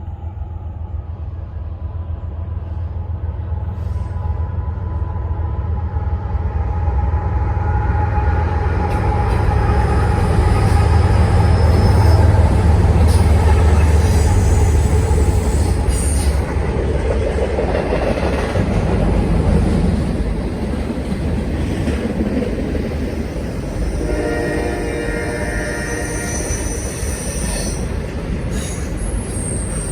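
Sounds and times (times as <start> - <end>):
diesel locomotive rumble: 0.0 - 29.9
train wheels on rails: 0.0 - 29.9
high wheel squeal: 10.4 - 16.5, 25.8 - 29.9.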